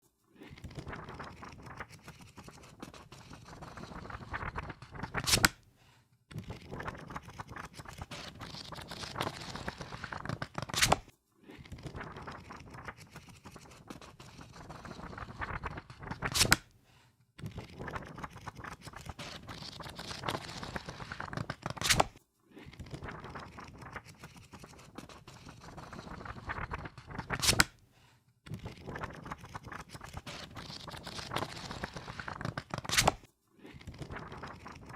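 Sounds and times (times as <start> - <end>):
book pages riffled: 0.4 - 5.6, 6.3 - 16.7, 17.4 - 27.8, 28.5 - 34.9
book snapping shut: 5.2 - 5.6, 10.7 - 11.0.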